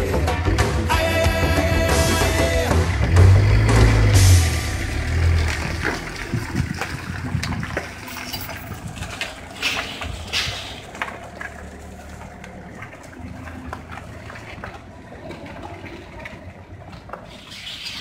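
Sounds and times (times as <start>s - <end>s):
song: 0.0s - 5.8s
vehicle engine idling: 0.0s - 18.0s.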